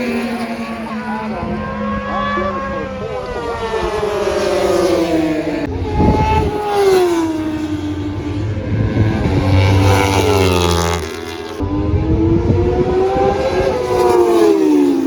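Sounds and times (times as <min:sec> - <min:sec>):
motorbike engines revving past: 0:00.0 - 0:15.0.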